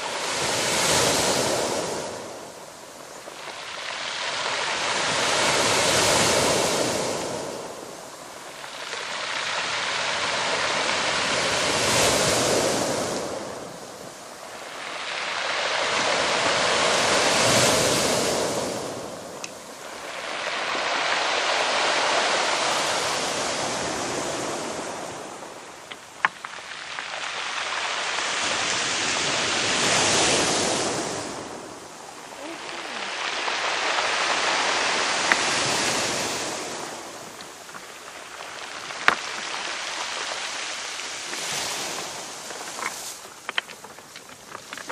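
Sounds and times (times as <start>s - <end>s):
sea waves washing ashore: 0.0s - 44.9s.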